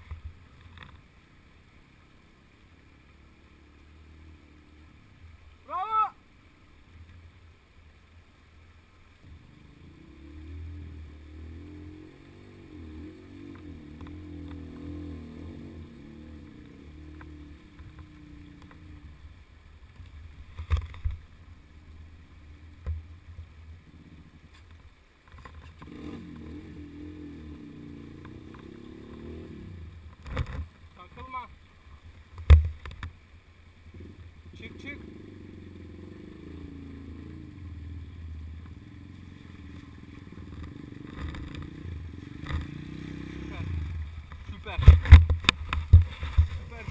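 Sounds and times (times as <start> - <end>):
off-road vehicle engine revving: 2.4 - 6.0, 9.2 - 19.4, 23.7 - 24.6, 25.4 - 31.5, 33.8 - 46.9.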